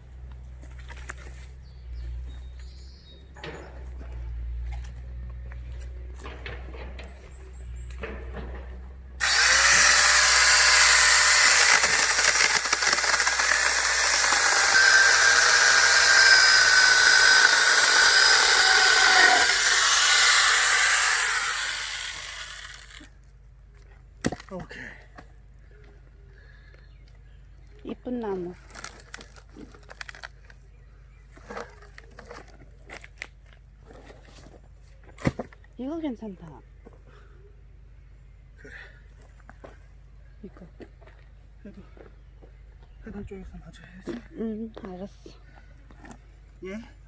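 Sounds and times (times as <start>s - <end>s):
twigs and leaves crunching: 0.2s - 24.7s, 27.0s - 35.8s
angle grinder motor whine: 9.2s - 23.1s
chain rasping through log: 9.2s - 23.1s.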